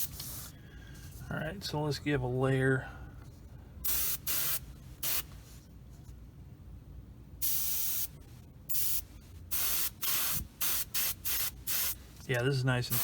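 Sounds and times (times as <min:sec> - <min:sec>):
airbrush hissing: 0:00.0 - 0:00.5, 0:03.8 - 0:05.3, 0:07.4 - 0:12.2.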